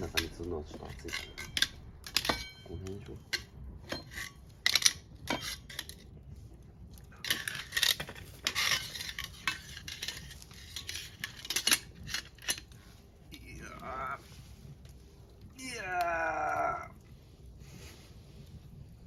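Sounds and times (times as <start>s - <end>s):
metal cookware clinking: 0.0s - 6.1s, 7.2s - 12.8s
metal scraping: 0.0s - 15.4s.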